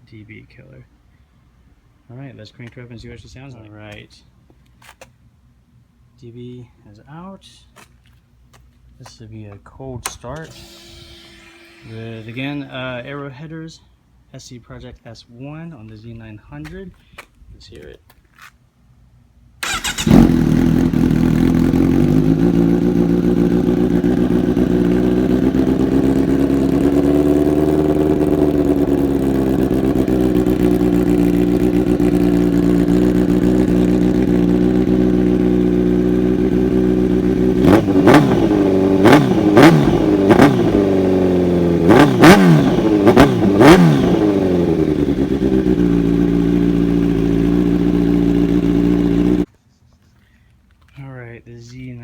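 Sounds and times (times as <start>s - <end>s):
motorcycle engine cold start: 10.0s - 13.0s, 19.6s - 36.2s, 37.0s - 49.4s
throttle blips revving engine: 10.4s - 13.0s, 19.6s - 49.5s
motorcycle engine idling: 19.6s - 49.5s.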